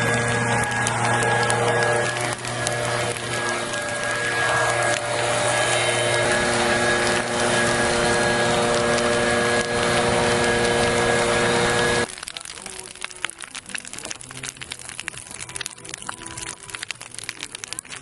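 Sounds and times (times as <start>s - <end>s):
machine running with hum tones: 0.0s - 12.1s.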